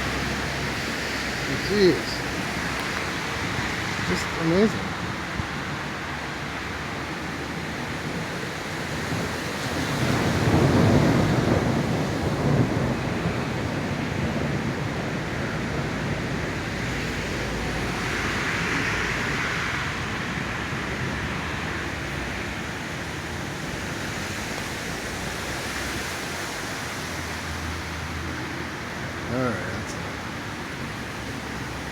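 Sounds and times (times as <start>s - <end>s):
wind and rain rushing: 0.0s - 31.9s
low thunder rumble: 8.0s - 24.0s.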